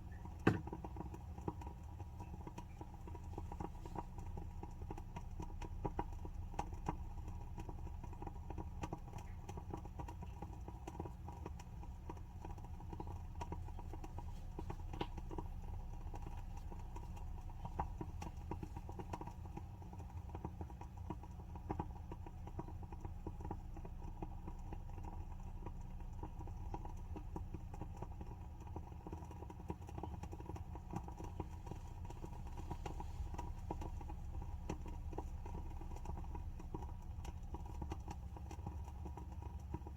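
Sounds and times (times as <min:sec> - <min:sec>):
low steady hum: 0:00.0 - 0:39.9
wooden candle wick crackling: 0:00.0 - 0:39.9.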